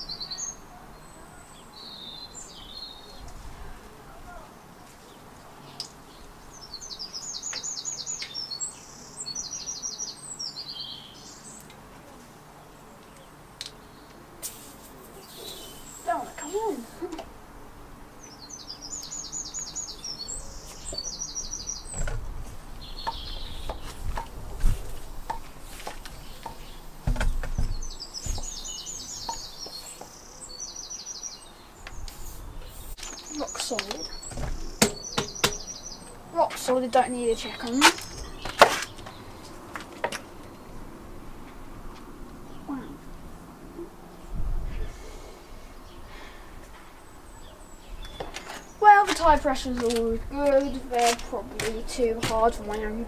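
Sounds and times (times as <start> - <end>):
songbird chirping: 0.0 - 14.4, 15.0 - 53.0
songbird trilling: 18.2 - 22.0, 22.8 - 23.9, 26.2 - 39.4
bicycle pump thumps and clicks: 25.2 - 28.5, 34.3 - 35.6.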